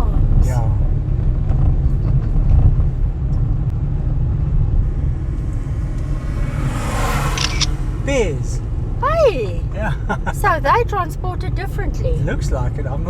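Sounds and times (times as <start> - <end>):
car driving low rumble: 0.0 - 13.0.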